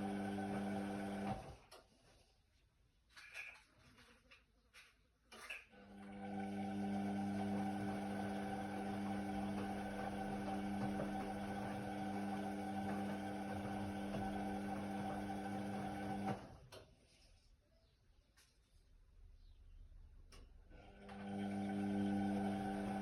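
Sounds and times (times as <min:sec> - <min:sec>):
washer-dryer motor hum: 0:00.0 - 0:01.7, 0:05.7 - 0:16.7, 0:20.7 - 0:23.0.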